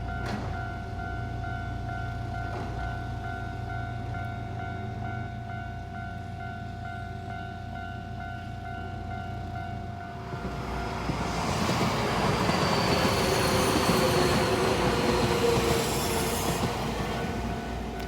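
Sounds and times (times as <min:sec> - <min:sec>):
train wheels on rails: 0:10.0 - 0:18.0.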